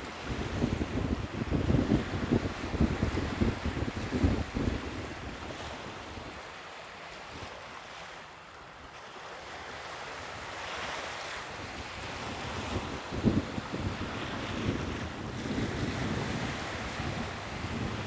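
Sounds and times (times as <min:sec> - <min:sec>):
wind buffeting microphone: 0:00.0 - 0:06.4, 0:11.5 - 0:18.0
sea waves washing in: 0:09.8 - 0:18.0.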